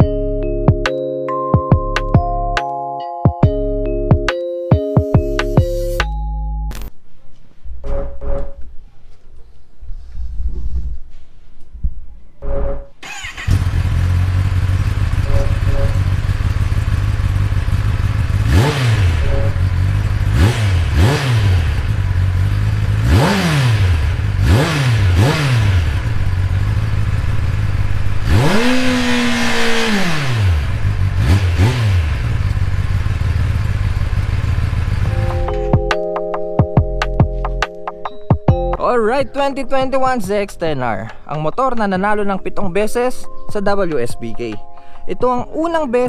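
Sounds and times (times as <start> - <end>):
motorcycle engine idling and revving: 13.0 - 35.9.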